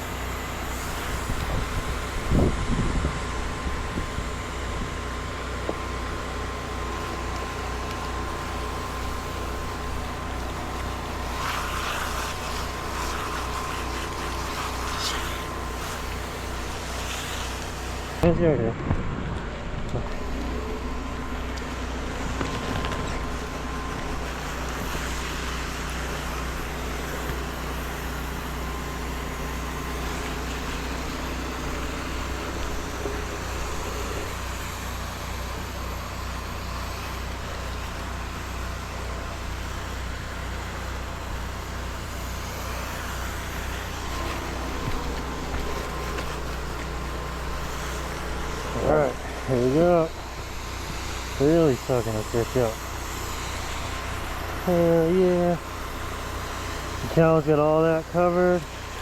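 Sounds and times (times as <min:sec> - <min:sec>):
generator engine hum: 0:00.0 - 0:59.0
spray hissing: 0:08.3 - 0:18.2.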